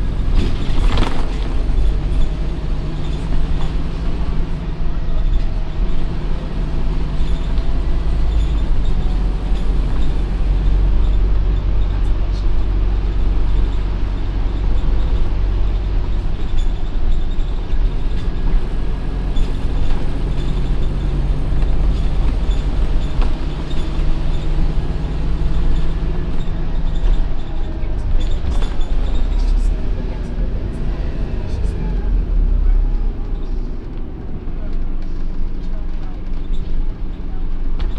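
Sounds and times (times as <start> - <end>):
bus engine rumbling: 0.0 - 37.9.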